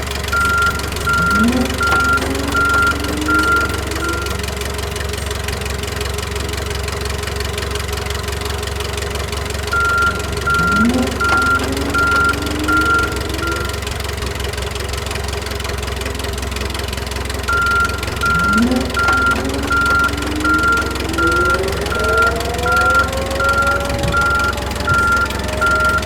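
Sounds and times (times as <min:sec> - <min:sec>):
low engine-like drone: 0:00.0 - 0:07.7, 0:09.2 - 0:26.0
quick high beeps: 0:00.4 - 0:04.4, 0:09.8 - 0:13.8, 0:17.5 - 0:26.0
rising and sliding tones: 0:00.4 - 0:04.5, 0:09.8 - 0:14.0, 0:17.5 - 0:26.0.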